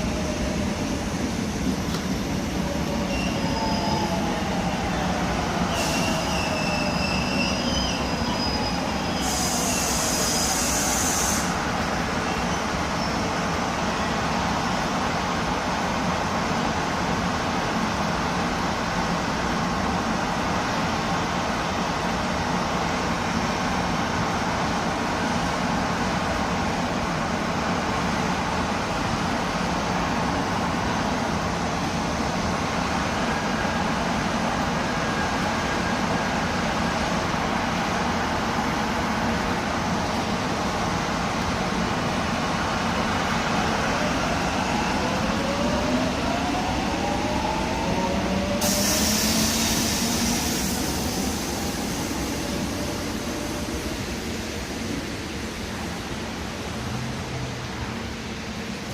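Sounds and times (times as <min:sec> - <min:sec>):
train rail running noise: 0:00.0 - 0:58.9
compressed air hiss: 0:05.7 - 0:06.2, 0:09.2 - 0:11.7, 0:48.6 - 0:52.7.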